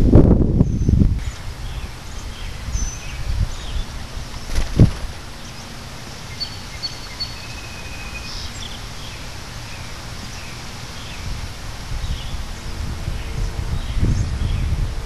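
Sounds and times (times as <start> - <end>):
wind rumble on microphone: 0.0 - 5.8, 8.5 - 15.0
bird chirps: 0.6 - 11.2.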